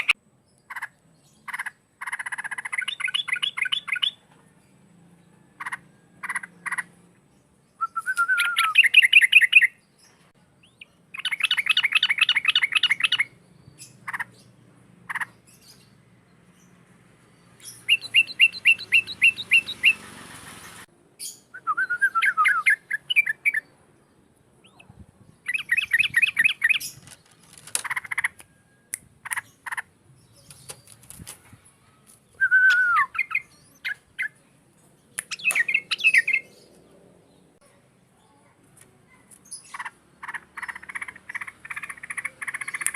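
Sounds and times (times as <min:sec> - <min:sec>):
bulbul singing: 0:00.0 - 0:04.3, 0:05.6 - 0:27.2, 0:32.2 - 0:37.5.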